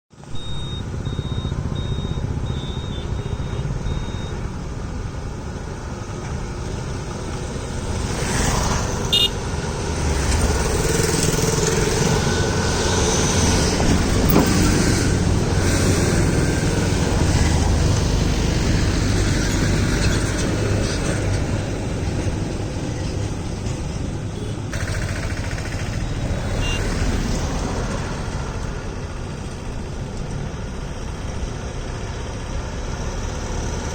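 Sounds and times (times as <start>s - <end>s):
truck engine rumbling: 0.1s - 33.9s.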